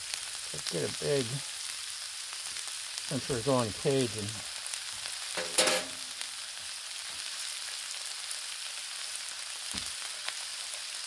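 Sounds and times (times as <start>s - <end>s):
food sizzling on a griddle: 0.0s - 11.0s
short clink: 5.4s - 6.1s.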